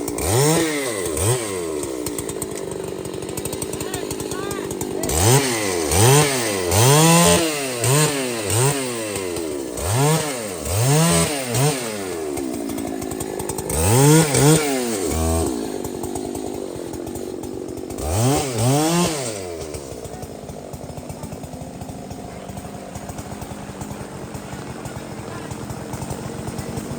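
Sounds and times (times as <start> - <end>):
chainsaw revving: 0.0 - 26.9.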